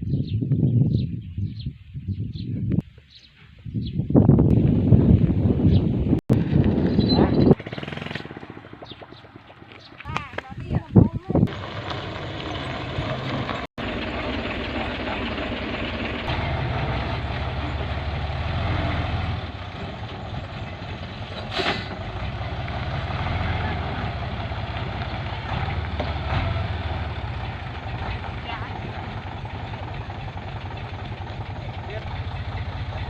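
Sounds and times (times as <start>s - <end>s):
dump truck engine under load: 11.5s - 33.0s.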